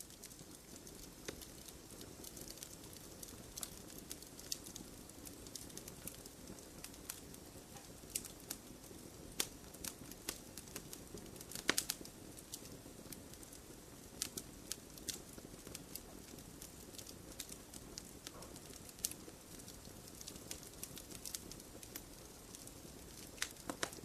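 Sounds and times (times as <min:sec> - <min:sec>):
low rustle of flame: 0:00.0 - 0:24.0
wood fire crackling and popping: 0:00.0 - 0:24.0.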